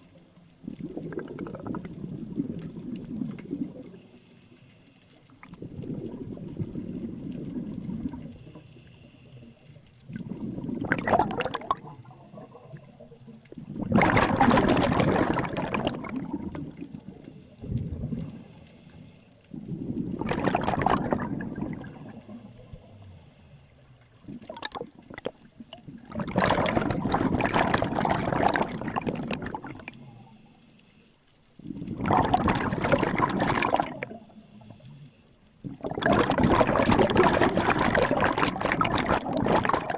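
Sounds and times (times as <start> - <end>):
diver exhaling bubbles through regulator: 0.7 - 3.9, 5.4 - 8.3, 10.1 - 12.8, 13.5 - 18.5, 19.5 - 22.8, 24.2 - 30.1, 31.6 - 34.3, 35.6 - 39.9.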